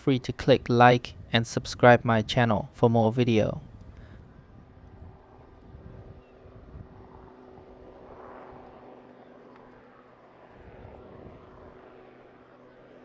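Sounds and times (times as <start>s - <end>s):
faint propeller aircraft drone: 0.0s - 13.0s
outdoor noise: 0.0s - 13.0s.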